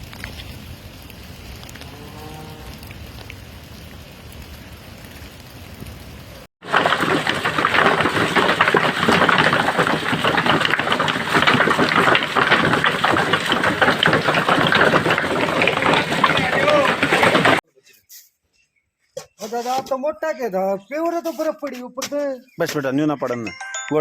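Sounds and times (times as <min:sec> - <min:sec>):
rain hissing: 0:00.0 - 0:17.6
raindrops on hard surface: 0:00.0 - 0:17.6.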